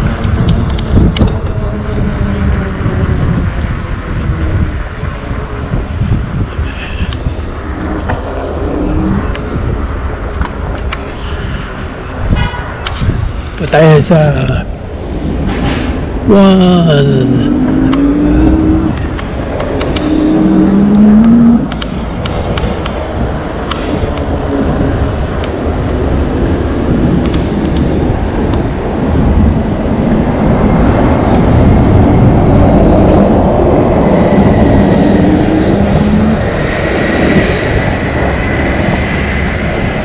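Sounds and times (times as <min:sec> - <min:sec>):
rushing wind and road noise: 0:00.0 - 0:40.0
rising electric motor tones: 0:17.0 - 0:21.8, 0:32.4 - 0:37.2.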